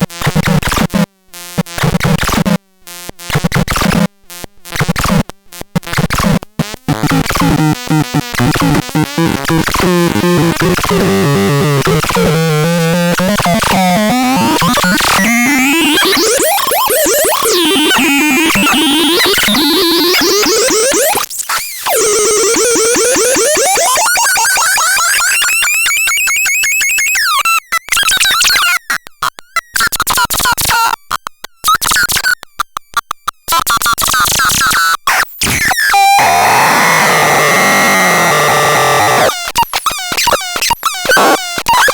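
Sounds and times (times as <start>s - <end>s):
synthesizer tones gliding: 7.5s - 21.2s, 35.8s - 39.3s.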